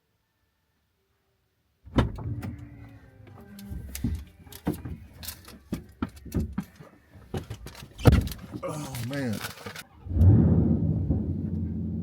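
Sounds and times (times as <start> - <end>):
vehicle doors clicking and knocking: 1.9 - 2.6, 3.7 - 8.6.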